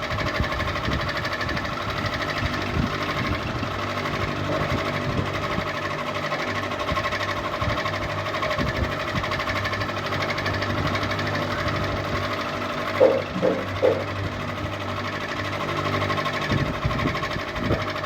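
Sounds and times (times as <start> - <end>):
ceiling fan humming: 0.0 - 17.9.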